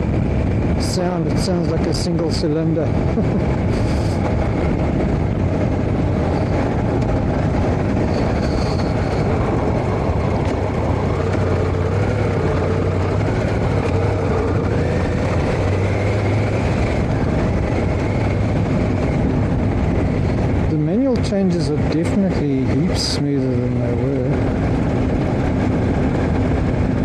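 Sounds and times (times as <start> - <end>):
motorcycle engine running: 0.0 - 27.0
wind and road noise: 0.0 - 27.0.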